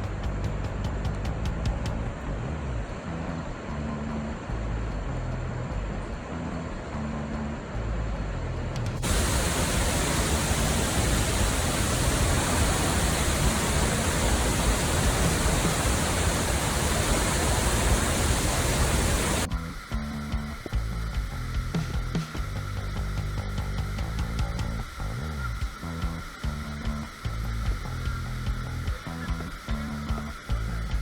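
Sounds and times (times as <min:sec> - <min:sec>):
waterfall rushing: 0:09.0 - 0:19.5.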